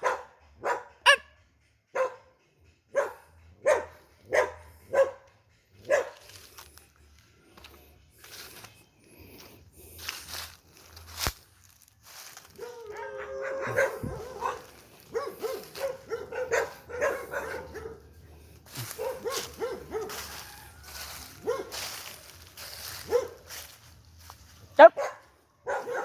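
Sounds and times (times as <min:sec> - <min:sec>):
small dog yipping: 0:00.0 - 0:01.4, 0:12.6 - 0:17.8.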